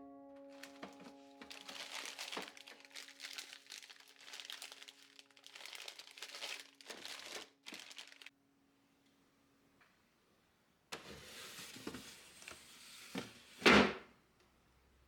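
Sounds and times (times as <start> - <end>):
packaging crinkling: 0.5 - 8.3.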